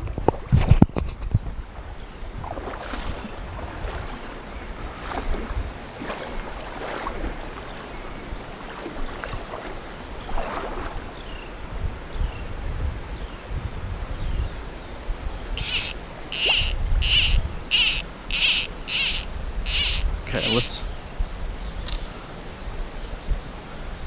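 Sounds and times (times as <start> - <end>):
wind buffeting microphone: 0.0 - 7.5, 10.2 - 22.0
water moving around kayak: 0.1 - 11.5
high falling chirps: 15.6 - 20.9.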